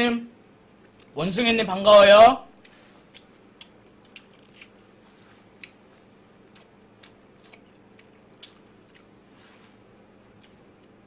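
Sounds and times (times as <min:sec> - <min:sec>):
low room hum: 0:00.0 - 0:11.0
man chewing food: 0:02.6 - 0:11.0.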